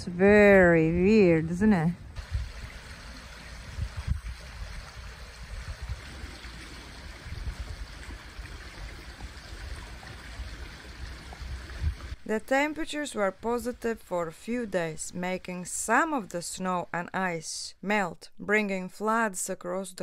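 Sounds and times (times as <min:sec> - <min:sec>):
river running: 0:01.2 - 0:16.8.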